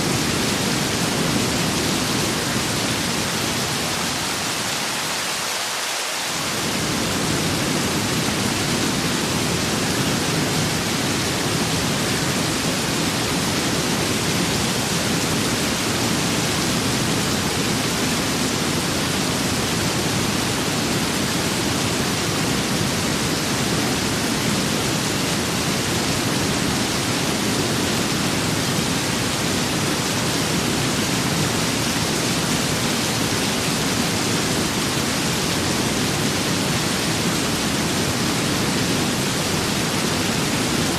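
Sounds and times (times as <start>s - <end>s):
low wind rumble: 0.0s - 5.2s, 6.4s - 40.9s
rain hissing: 0.0s - 40.9s.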